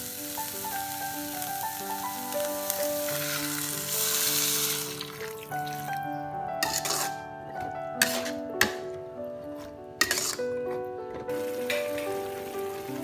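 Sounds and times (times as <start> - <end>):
vegetables sizzling in a wok: 0.0 - 6.0, 6.6 - 7.1, 10.0 - 10.4, 11.3 - 13.0
background music: 0.0 - 13.0
water poured into wok: 2.5 - 6.0.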